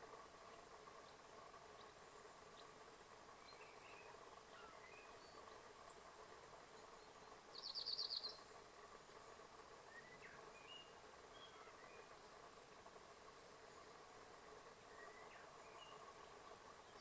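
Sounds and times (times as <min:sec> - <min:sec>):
small birds chirping: 0:00.0 - 0:17.0
loud rapid bird trill: 0:06.9 - 0:08.5.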